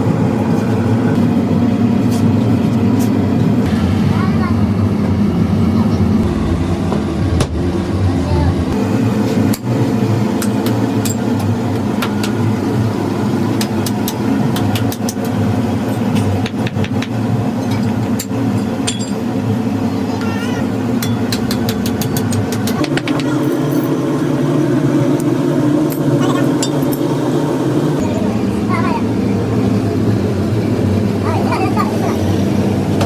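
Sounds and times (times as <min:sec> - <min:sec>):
motor humming: 0:03.7 - 0:09.2, 0:22.6 - 0:33.0.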